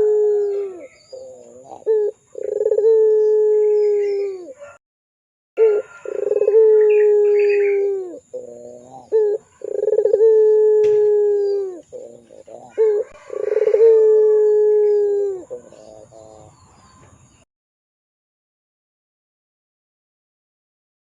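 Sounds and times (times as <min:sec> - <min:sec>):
dove cooing: 0:00.0 - 0:04.8, 0:05.6 - 0:17.2.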